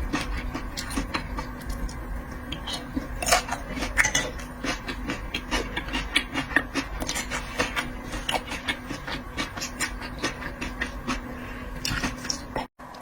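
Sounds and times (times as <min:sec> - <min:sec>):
chewing and handling shellfish: 0:00.0 - 0:13.0
faint steady hum: 0:00.0 - 0:13.0.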